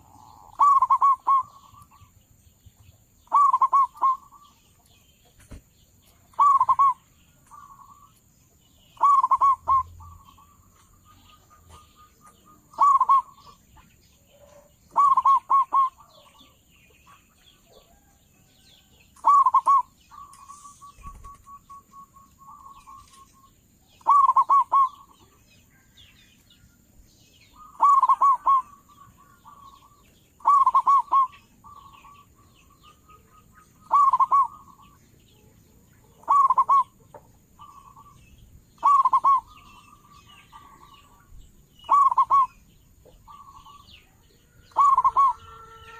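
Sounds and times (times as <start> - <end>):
dove cooing: 0.0 - 2.1, 3.2 - 4.5, 6.3 - 8.1, 9.0 - 13.6, 14.3 - 16.6, 19.2 - 23.2, 24.0 - 25.2, 27.6 - 35.0, 36.1 - 38.2, 38.8 - 41.2, 41.8 - 43.9, 44.5 - 45.9
birds chirping faintly: 0.0 - 45.9.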